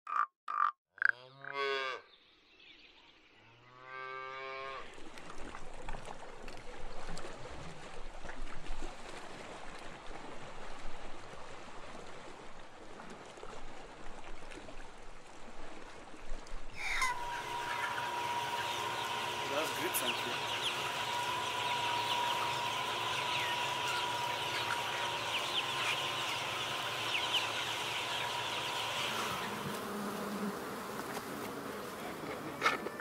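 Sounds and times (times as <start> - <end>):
frog croaking: 0.1 - 1.6.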